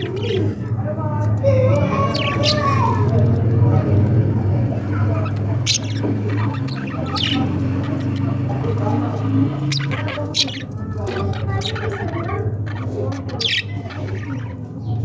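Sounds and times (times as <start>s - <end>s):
budgerigars chattering: 0.0s - 0.7s, 4.7s - 15.0s
bird squawks: 5.1s - 14.9s.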